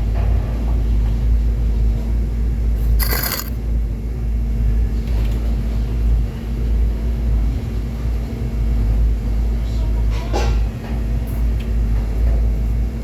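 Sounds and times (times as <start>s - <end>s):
metallic clink: 3.0s - 3.6s.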